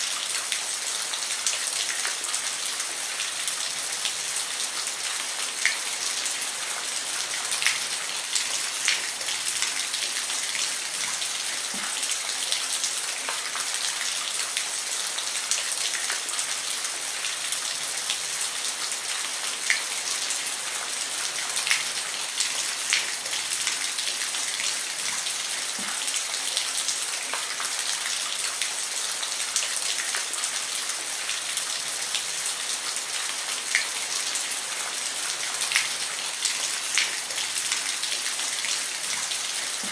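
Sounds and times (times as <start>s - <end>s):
rain hissing on a roof: 0.0s - 39.9s.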